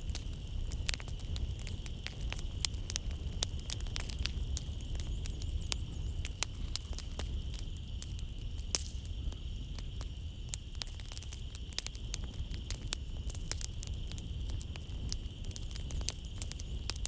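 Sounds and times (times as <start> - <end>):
wood fire crackling: 0.0 - 17.0
night insects chirring: 0.1 - 17.0.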